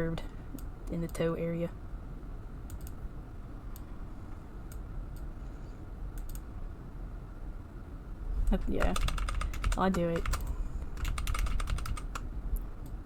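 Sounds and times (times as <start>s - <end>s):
keyboard and mouse clicks: 2.7s - 3.0s, 6.2s - 6.4s, 8.7s - 12.2s.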